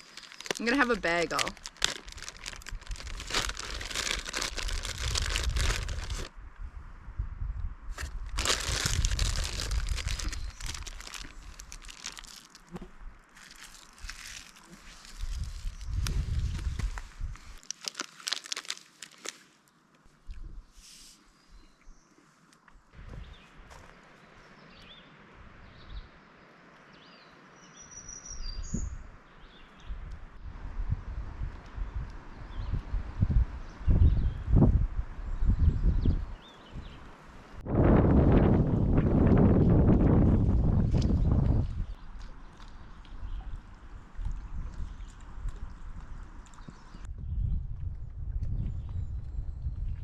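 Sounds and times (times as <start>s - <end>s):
small birds chirping: 0.0s - 6.1s, 8.4s - 12.6s
plastic packaging crinkling: 0.0s - 6.3s, 8.0s - 12.7s, 13.4s - 19.5s.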